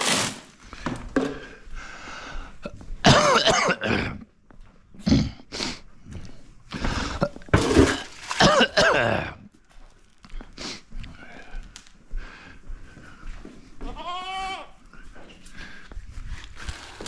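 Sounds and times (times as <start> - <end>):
goats bleating: 13.8 - 14.8.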